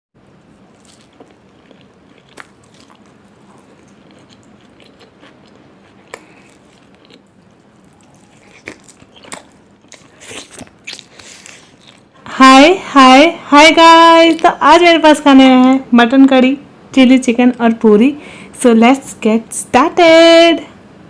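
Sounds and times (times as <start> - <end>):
bites and wet chewing: 0.3 - 12.2.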